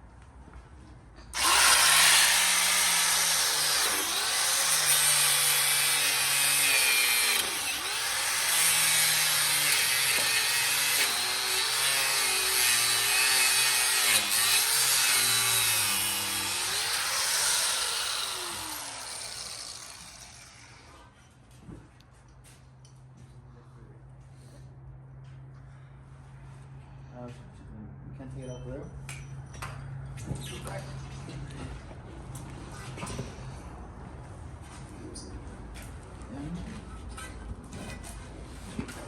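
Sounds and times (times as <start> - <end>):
angle grinder cutting metal: 1.4 - 21.0.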